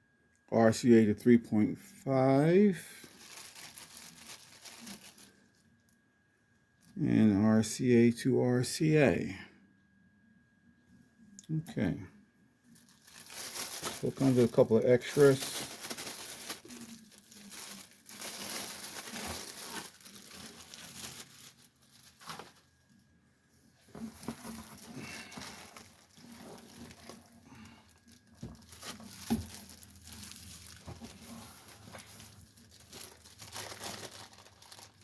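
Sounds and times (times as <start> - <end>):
plastic wrap crinkling: 2.7 - 5.9, 12.7 - 23.1, 23.8 - 35.0.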